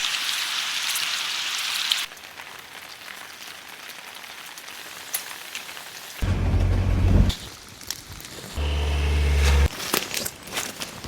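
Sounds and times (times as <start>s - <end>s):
rain hissing: 6.2s - 9.7s.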